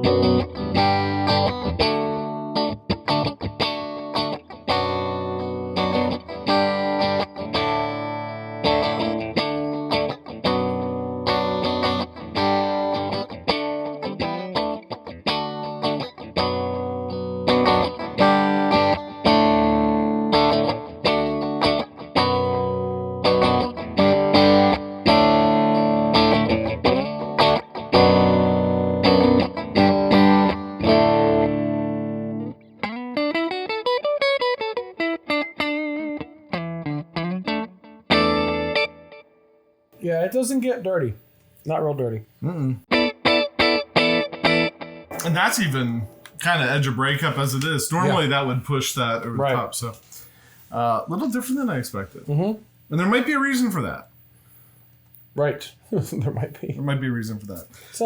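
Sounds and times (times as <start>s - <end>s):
overdriven electric guitar: 0.0s - 39.7s, 42.9s - 45.4s.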